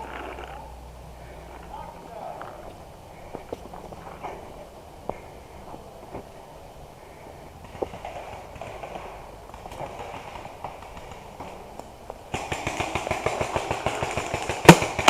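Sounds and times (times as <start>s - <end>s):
rustling: 0.0s - 15.0s
soft footsteps: 1.3s - 6.4s
paintball marker shots: 12.3s - 15.0s.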